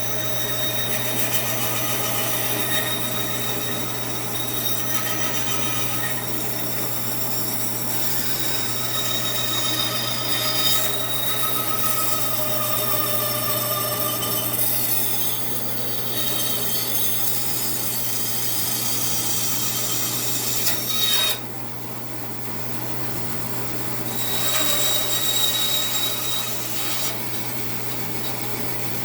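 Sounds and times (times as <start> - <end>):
bandsaw blade cutting wood: 0.0 - 7.0, 7.7 - 17.8, 18.7 - 21.4, 24.2 - 27.2
bandsaw motor hum: 0.0 - 21.5, 24.0 - 29.0.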